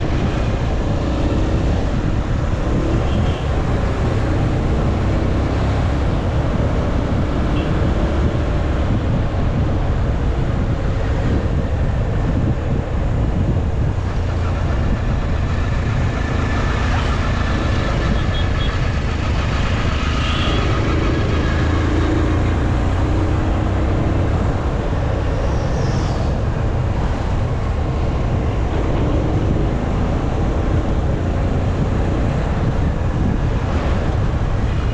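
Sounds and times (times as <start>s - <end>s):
wind rumble on microphone: 0.0s - 34.9s
motorcycle engine: 14.2s - 24.4s.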